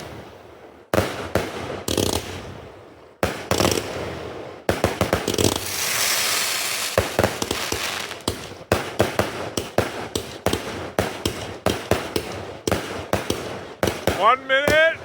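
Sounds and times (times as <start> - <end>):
fireworks bangs: 4.7 - 15.0
fireworks hissing and crackling: 4.8 - 11.5.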